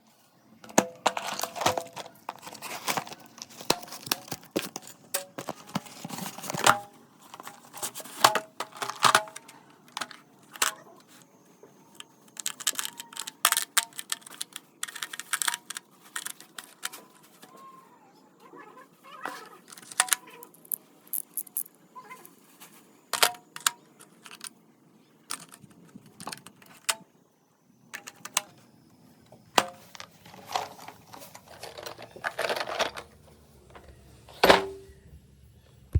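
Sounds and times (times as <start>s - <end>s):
packaging crinkling: 1.2s - 6.6s, 12.1s - 17.3s
metal sockets clinking: 12.0s - 17.5s, 19.6s - 21.7s, 23.2s - 24.6s, 25.2s - 27.0s.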